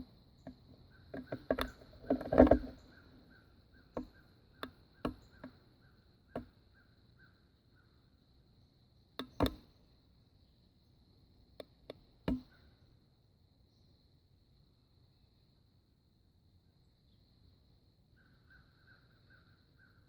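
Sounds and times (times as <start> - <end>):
sharp clicks and knocks: 0.0 - 3.0, 3.9 - 5.6, 9.2 - 9.7, 11.6 - 12.5.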